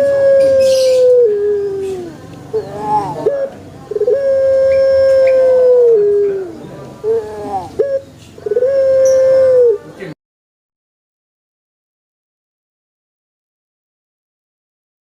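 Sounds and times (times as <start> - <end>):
dove cooing: 0.0 - 10.2.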